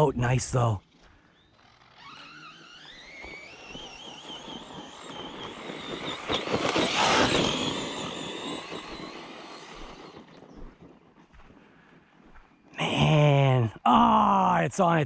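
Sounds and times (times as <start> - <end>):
rush of tires and dirt: 0.0 - 15.0
electric motor whining: 0.8 - 11.0.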